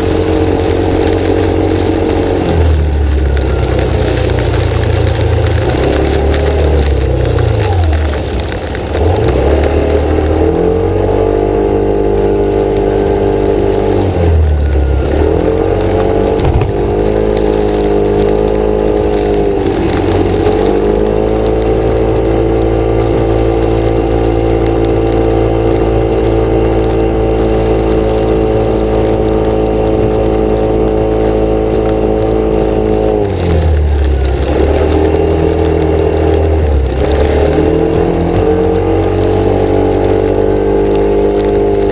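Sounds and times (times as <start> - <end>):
engine running loudly: 0.0 - 41.9.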